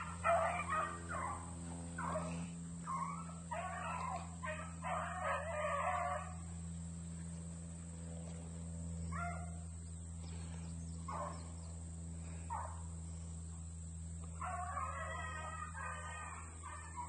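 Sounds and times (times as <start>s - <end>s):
dogs barking: 0.0s - 6.6s, 9.0s - 9.7s, 11.0s - 11.6s, 12.2s - 12.9s, 14.2s - 17.0s
dogs yelping: 0.0s - 6.6s, 9.1s - 9.6s, 11.1s - 11.5s, 12.5s - 12.8s, 14.3s - 17.0s.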